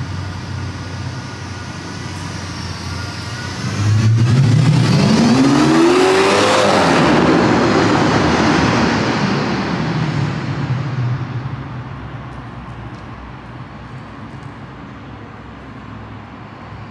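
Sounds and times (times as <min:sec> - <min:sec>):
car exhaust under full throttle: 0:01.6 - 0:12.6.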